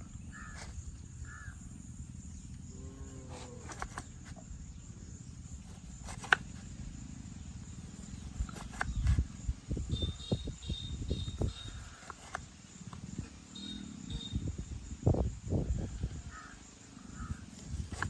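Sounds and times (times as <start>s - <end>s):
bird calling: 0.0s - 5.0s, 8.0s - 14.6s, 15.8s - 18.0s
steady low rumble: 0.0s - 17.9s.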